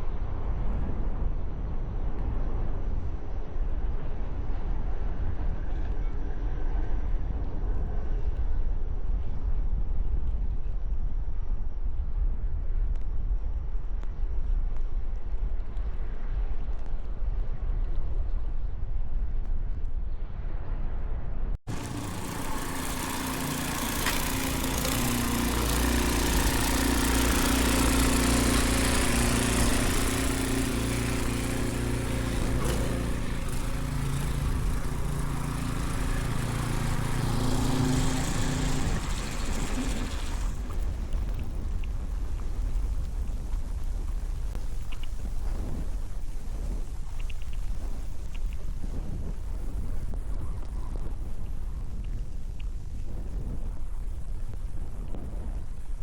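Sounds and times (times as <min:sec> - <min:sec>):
hiss: 0:21.7 - 0:41.5
engine running: 0:21.7 - 0:45.4
wind buffeting microphone: 0:21.7 - 0:56.0.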